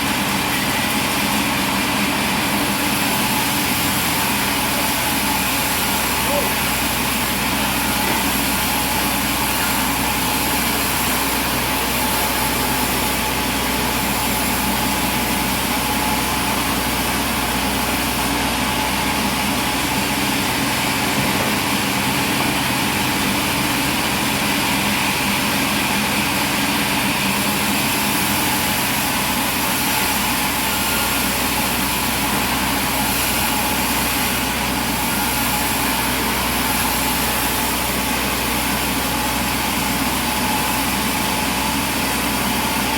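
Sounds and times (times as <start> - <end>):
sawmill machinery drone: 0.0 - 42.9.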